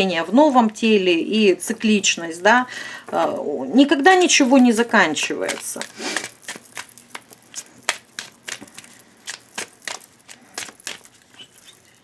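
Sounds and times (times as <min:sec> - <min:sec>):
cards being shuffled: 0:04.1 - 0:12.0.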